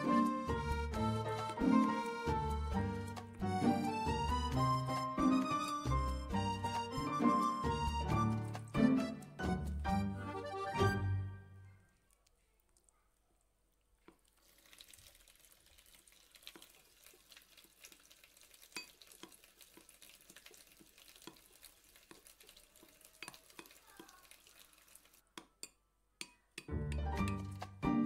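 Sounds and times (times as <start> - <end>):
utensil clicking against a bowl: 25.3 - 27.6.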